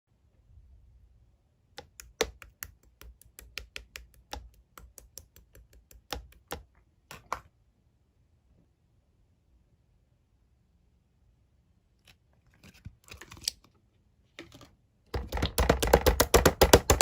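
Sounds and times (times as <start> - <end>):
sharp taps or clicks: 1.8 - 7.4, 15.2 - 17.0.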